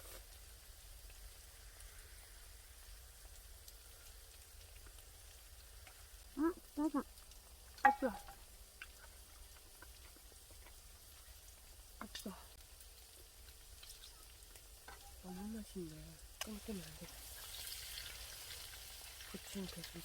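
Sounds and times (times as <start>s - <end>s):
faint sizzle of frying meat: 0.0s - 20.0s
person calling out: 6.4s - 7.0s.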